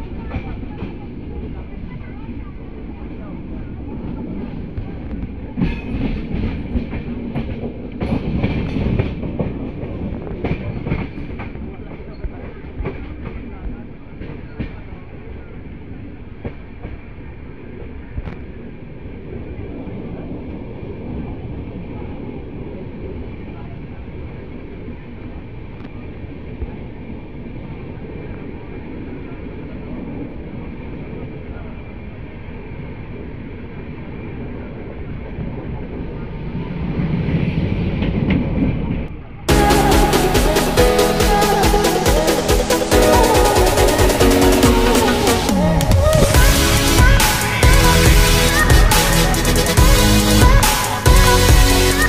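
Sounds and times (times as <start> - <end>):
train wheels rumbling on rails: 0.0 - 52.0
rushing air: 39.5 - 52.0.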